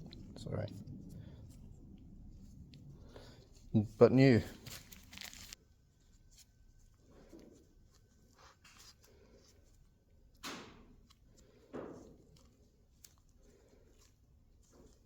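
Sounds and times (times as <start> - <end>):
faint rustling: 0.0 - 10.4.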